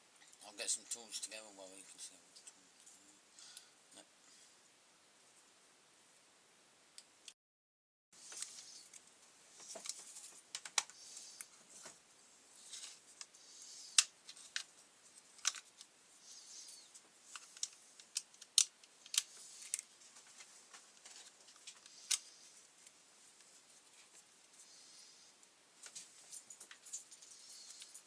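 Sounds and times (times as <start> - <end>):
soft rustling: 19.2 - 28.0.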